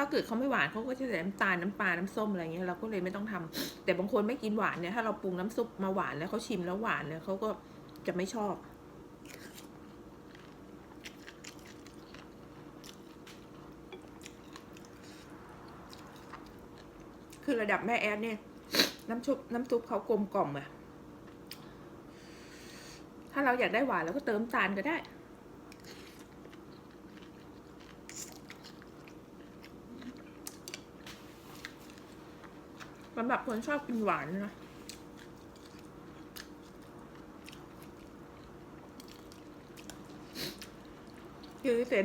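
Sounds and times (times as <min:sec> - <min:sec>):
faint steady hum: 0:00.0 - 0:42.0
person chewing noodles: 0:09.2 - 0:17.4, 0:25.7 - 0:33.1, 0:34.7 - 0:41.6.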